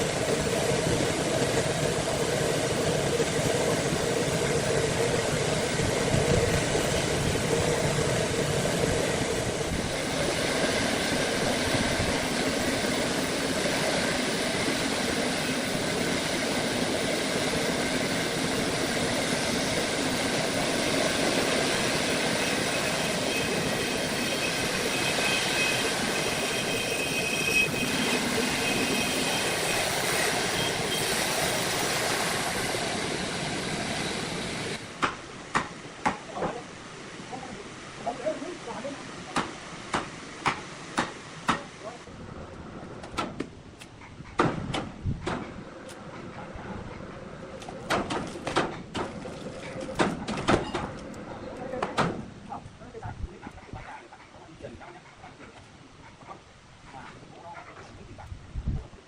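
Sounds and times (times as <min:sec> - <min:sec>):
faint high whine: 0:09.1 - 0:34.9.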